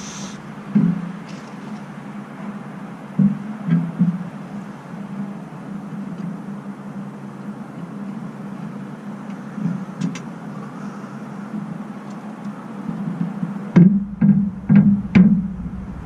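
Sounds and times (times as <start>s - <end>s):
engine idling: 0.0s - 0.7s, 14.0s - 16.0s
loud sound: 13.9s - 16.0s.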